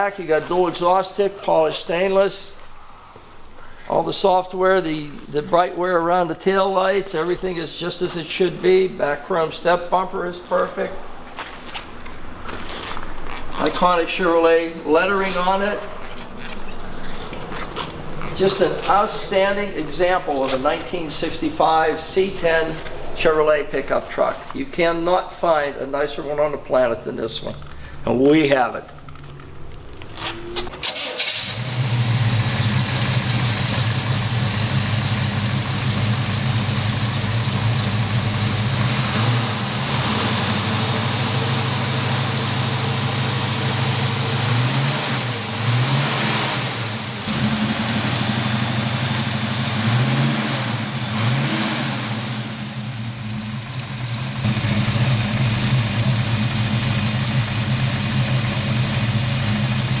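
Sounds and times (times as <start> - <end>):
pickup engine starting and revving: 30.1 - 60.0.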